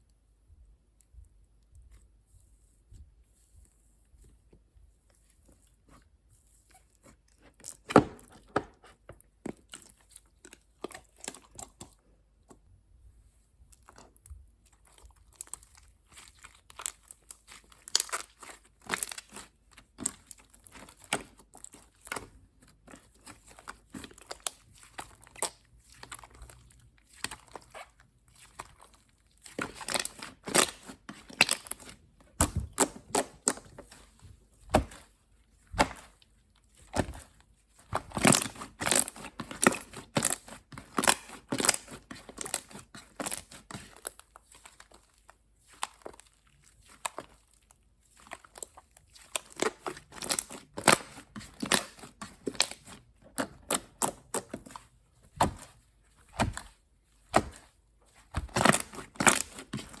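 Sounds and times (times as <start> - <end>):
plastic packaging crinkling and tearing: 36.9 - 54.8.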